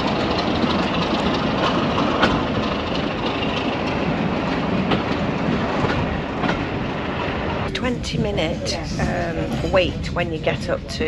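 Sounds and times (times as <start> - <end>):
wheels clicking over rail joints: 0.0 - 7.0
railway carriages rolling: 0.0 - 11.0.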